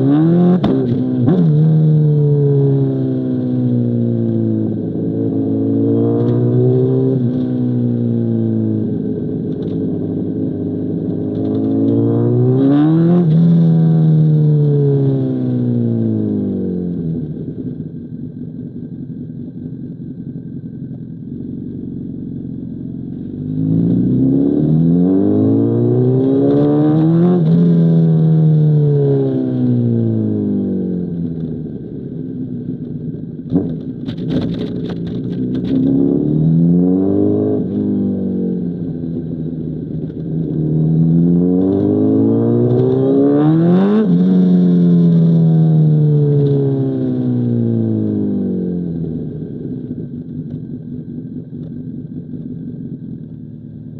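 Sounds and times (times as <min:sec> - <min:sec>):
motorcycle engine revving: 0:21.5 - 0:31.4, 0:33.4 - 0:52.6.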